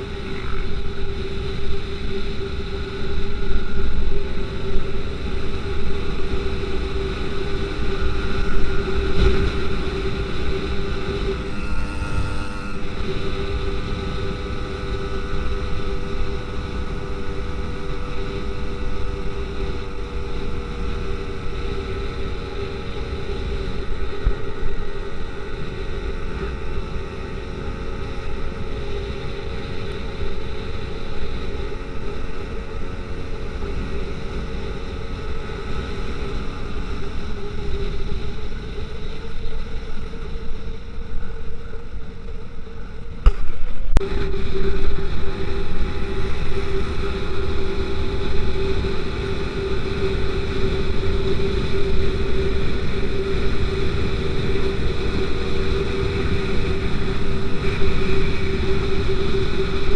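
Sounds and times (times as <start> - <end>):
two-stroke bicycle engine running: 0.0 - 59.9
wind rumbling on microphone: 0.0 - 59.9.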